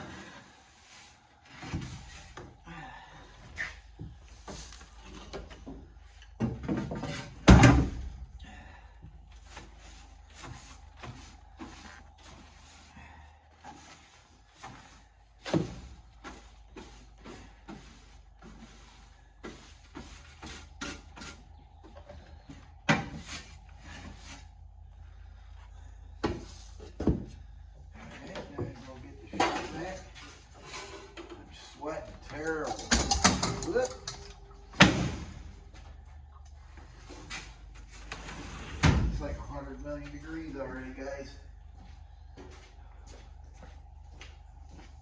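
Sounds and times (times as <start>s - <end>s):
faint steady hum: 0.0s - 45.0s
wooden parts knocking and scraping: 32.1s - 35.0s.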